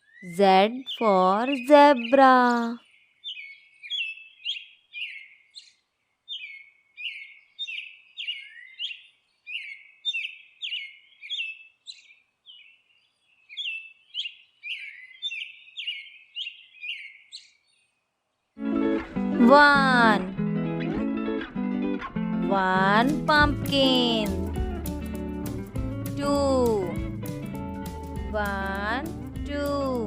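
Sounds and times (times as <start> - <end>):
bird chirping: 0.0 - 18.6.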